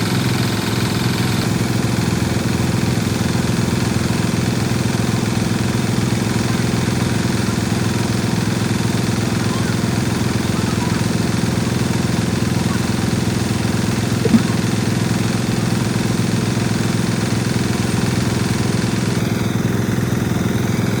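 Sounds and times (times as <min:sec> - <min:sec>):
engine running steadily: 0:00.0 - 0:21.0
short click: 0:14.3 - 0:14.6.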